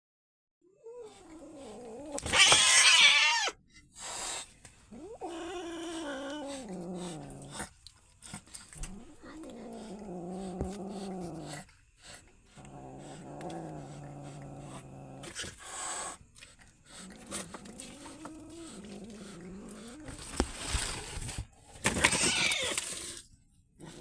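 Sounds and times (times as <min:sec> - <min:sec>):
cats growling yowls: 0:00.7 - 0:03.6, 0:04.9 - 0:21.0, 0:21.9 - 0:23.0
cat hissing screech: 0:02.2 - 0:04.4, 0:22.0 - 0:22.8.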